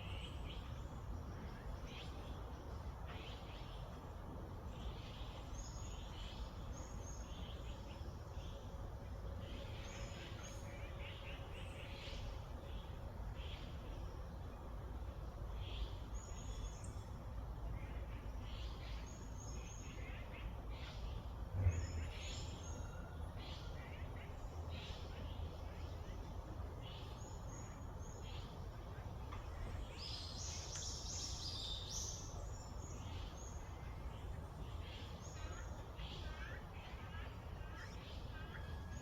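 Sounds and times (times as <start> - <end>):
small birds chirping: 23.6 - 39.0.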